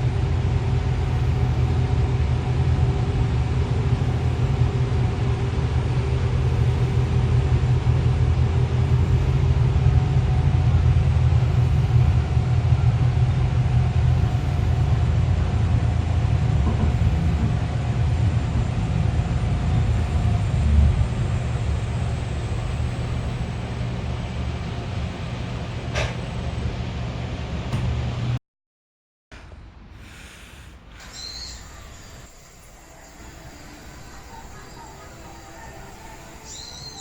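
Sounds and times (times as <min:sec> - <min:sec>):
vehicle rumble from inside cabin: 0:00.0 - 0:28.4.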